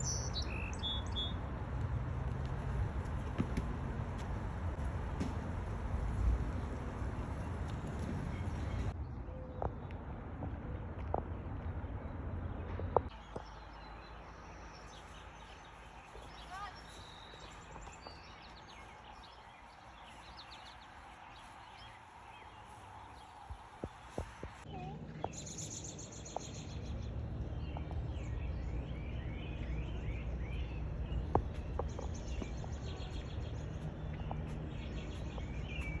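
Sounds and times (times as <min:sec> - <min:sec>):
birds chirping and calling: 0:00.0 - 0:01.4.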